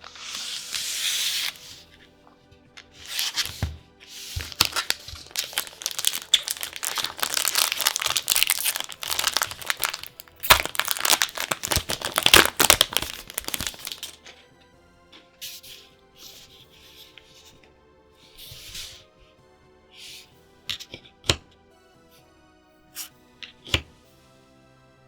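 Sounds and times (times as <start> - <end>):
plastic packaging crinkling and tearing: 0.1 - 1.8, 3.0 - 3.6, 4.4 - 14.2.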